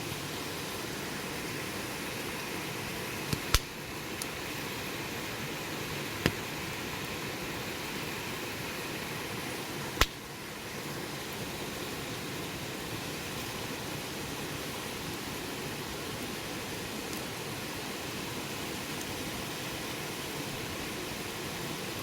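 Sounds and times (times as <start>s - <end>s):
wood fire hissing and crackling: 0.0s - 22.0s
burning wood popping: 3.2s - 4.4s, 6.2s - 7.1s, 10.0s - 10.2s.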